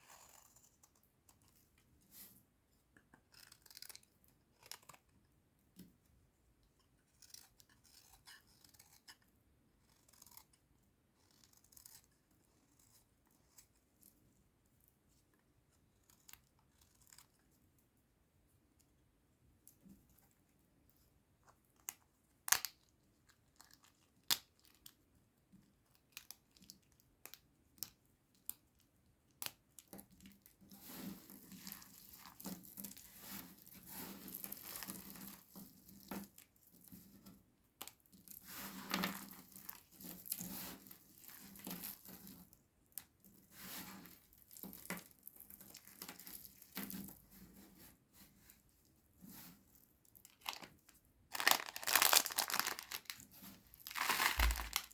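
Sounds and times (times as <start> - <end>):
dry soap crumbling and crackling: 3.0 - 5.3, 6.8 - 14.2, 21.4 - 37.2, 37.8 - 47.3, 49.3 - 54.9.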